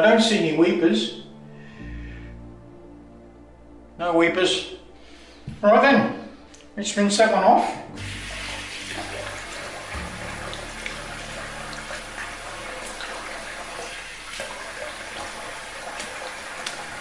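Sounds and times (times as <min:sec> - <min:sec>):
tap water running into sink: 0:08.0 - 0:17.0
water splashing: 0:08.0 - 0:17.0.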